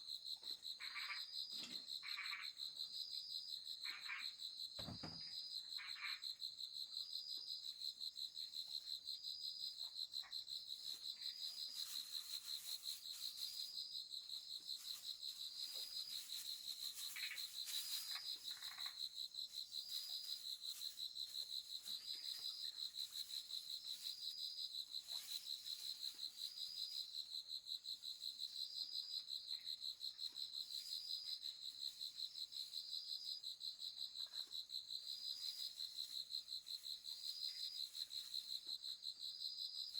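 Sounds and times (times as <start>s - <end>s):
faint short insect calls: 0.6s - 7.3s, 9.6s - 27.2s
insect chorus trilling: 0.8s - 2.6s, 10.2s - 27.3s.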